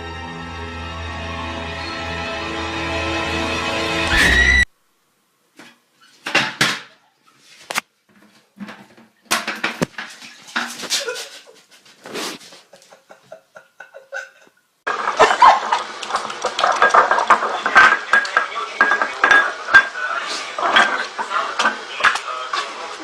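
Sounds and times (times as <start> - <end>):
hard objects clattering: 14.9 - 20.0, 20.6 - 22.3.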